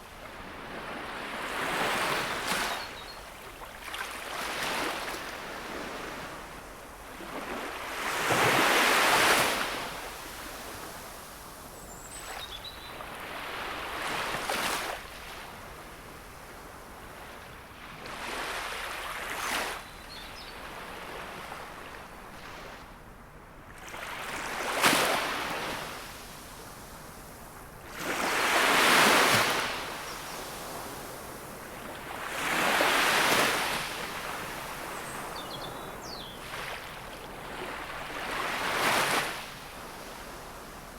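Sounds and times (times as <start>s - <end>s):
sea waves breaking on shore: 7.1s - 11.2s, 27.8s - 40.9s.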